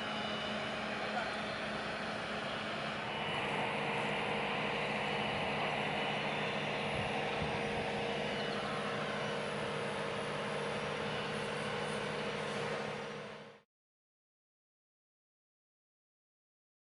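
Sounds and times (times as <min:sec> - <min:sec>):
crane engine humming: 0:00.0 - 0:13.6.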